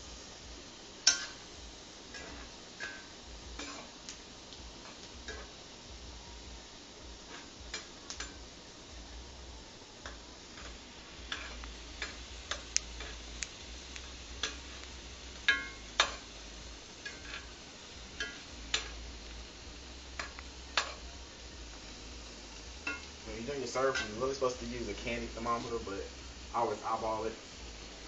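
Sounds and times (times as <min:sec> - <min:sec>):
utensils clicking against pots: 0:01.0 - 0:01.4, 0:02.1 - 0:04.2, 0:04.8 - 0:05.6, 0:07.2 - 0:08.4, 0:10.0 - 0:19.1, 0:20.1 - 0:21.1, 0:22.8 - 0:25.8.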